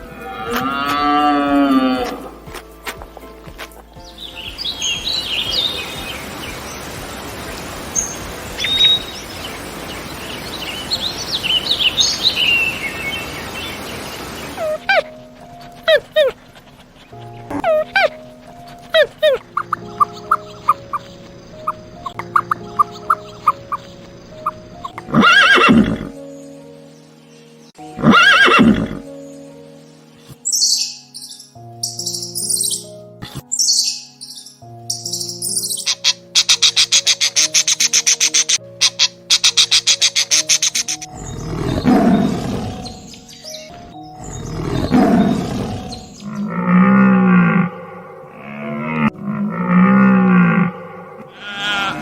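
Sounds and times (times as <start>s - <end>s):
harsh animal call: 0.0s - 2.3s, 25.0s - 26.2s, 28.0s - 29.0s, 35.8s - 52.0s
background music: 0.0s - 52.0s
horse whinnying: 25.1s - 26.2s, 28.0s - 29.0s, 51.2s - 52.0s.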